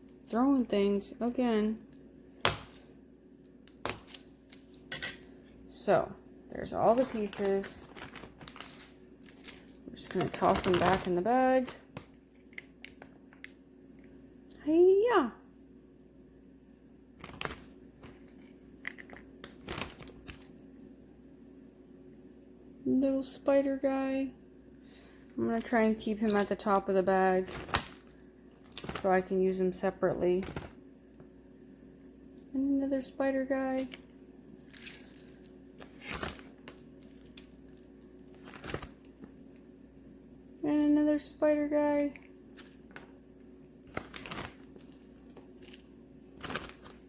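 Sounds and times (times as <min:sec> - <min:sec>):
plastic bag crinkling: 0:06.6 - 0:12.4, 0:17.2 - 0:20.6, 0:25.5 - 0:29.3, 0:33.8 - 0:39.4, 0:43.8 - 0:47.0.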